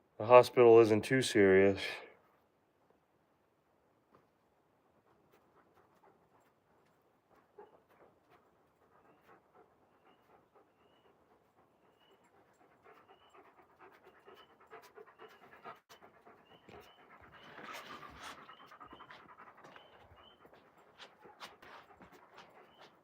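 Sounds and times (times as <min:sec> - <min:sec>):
dog panting: 0:04.6 - 0:23.0.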